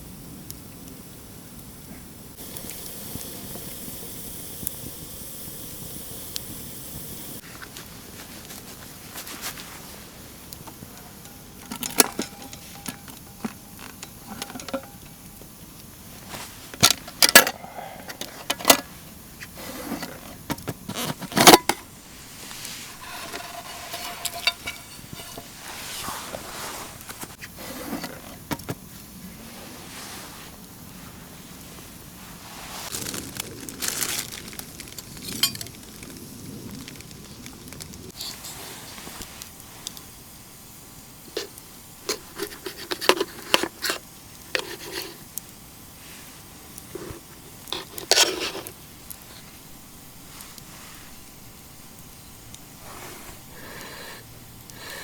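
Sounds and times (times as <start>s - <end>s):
steady hiss: 0.0s - 55.0s
metal cookware clanking: 10.9s - 15.3s, 22.8s - 26.0s.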